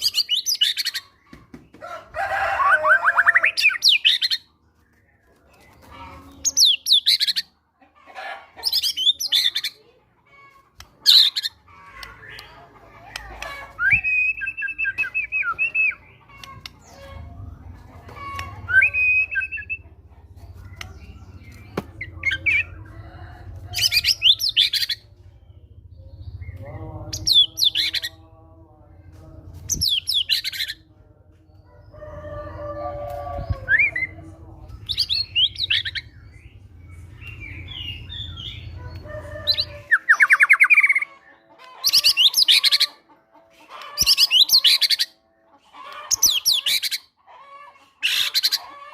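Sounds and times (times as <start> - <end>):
songbird singing: 10.8 - 28.4, 29.5 - 43.0.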